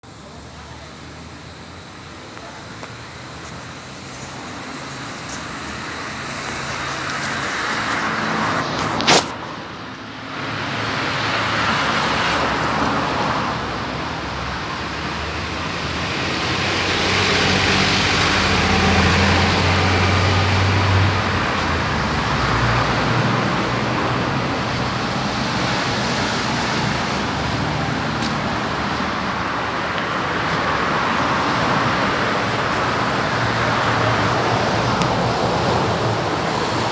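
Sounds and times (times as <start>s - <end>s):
vehicles passing: 0.0s - 36.9s
low engine hum: 10.8s - 36.9s.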